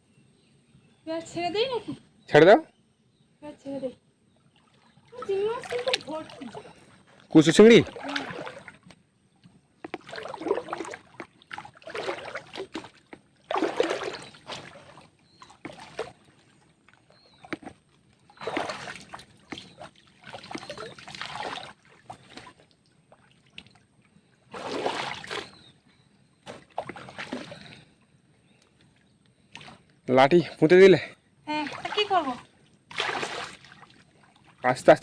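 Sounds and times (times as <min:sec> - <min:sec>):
river water sloshing and splashing: 0:04.3 - 0:09.0, 0:09.7 - 0:28.0, 0:28.8 - 0:29.9, 0:31.5 - 0:35.0.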